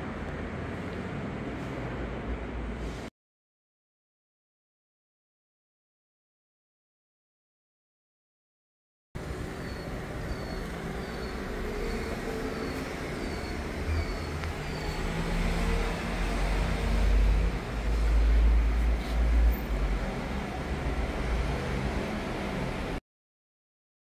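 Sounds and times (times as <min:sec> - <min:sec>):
traffic rumble: 0:00.0 - 0:03.1, 0:09.2 - 0:23.0
faint high chirp: 0:09.5 - 0:15.1.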